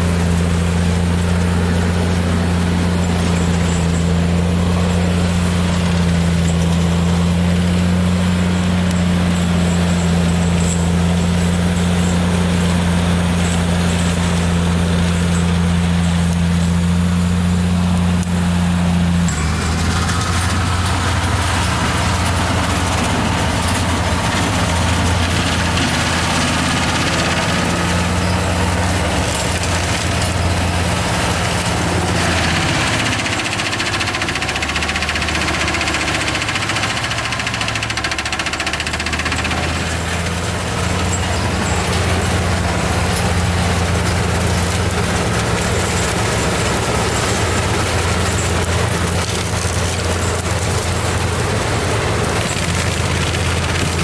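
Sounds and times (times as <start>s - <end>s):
mulcher hiss and rattle: 0.0s - 54.0s
tractor engine running: 0.0s - 54.0s.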